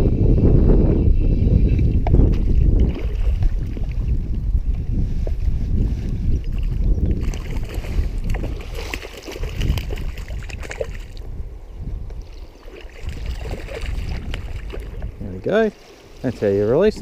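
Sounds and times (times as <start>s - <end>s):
wind buffeting microphone: 0.0s - 17.0s
small water splashes: 2.0s - 4.3s, 6.5s - 11.3s, 12.2s - 16.3s.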